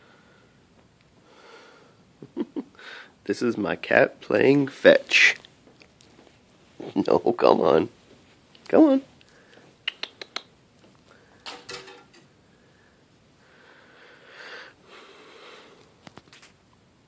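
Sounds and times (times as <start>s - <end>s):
faint breathy sound: 12.4s - 16.0s.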